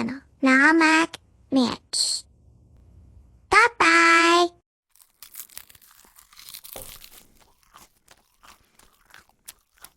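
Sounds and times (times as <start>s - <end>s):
crunching bites: 4.9s - 9.9s
soft tearing of pastry: 4.9s - 9.9s.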